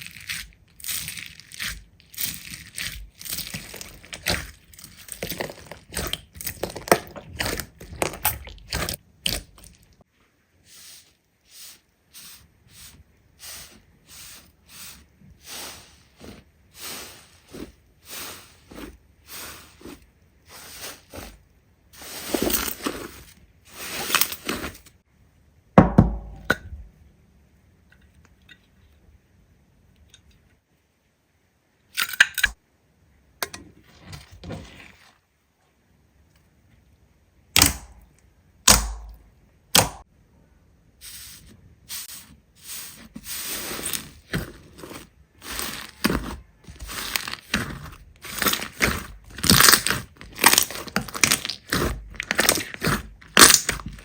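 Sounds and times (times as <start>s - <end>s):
slime crackling: 0.0s - 10.0s, 43.4s - 54.0s
sharp cracks and knocks: 37.6s - 38.0s, 38.7s - 39.2s, 39.8s - 40.0s.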